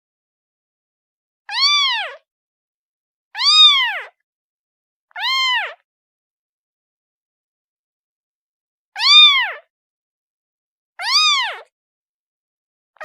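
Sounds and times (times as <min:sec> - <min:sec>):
kitten meowing: 0:01.5 - 0:02.2, 0:03.4 - 0:04.2, 0:05.1 - 0:05.8, 0:09.0 - 0:09.7, 0:11.0 - 0:11.7.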